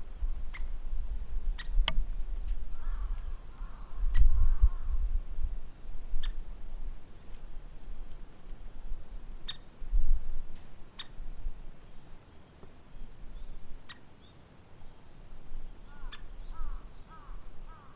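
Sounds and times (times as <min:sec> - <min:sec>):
small birds chirping: 0:12.3 - 0:17.9
woodpecker calls: 0:15.8 - 0:17.9.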